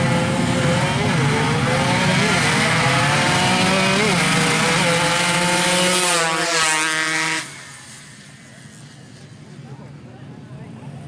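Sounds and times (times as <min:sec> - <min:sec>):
motorcycle engine at high revs: 0:00.0 - 0:08.6.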